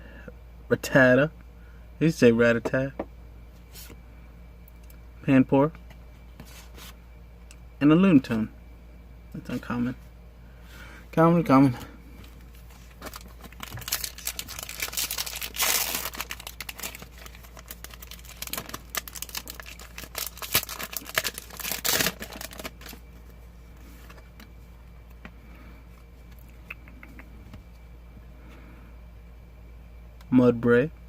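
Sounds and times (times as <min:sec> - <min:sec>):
foil wrapper crinkling and tearing: 0:12.8 - 0:23.0.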